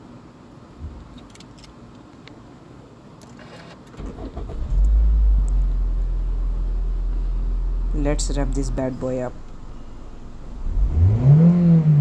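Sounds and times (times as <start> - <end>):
starter motor cranking: 4.0 - 5.3
car engine idling: 4.0 - 12.0.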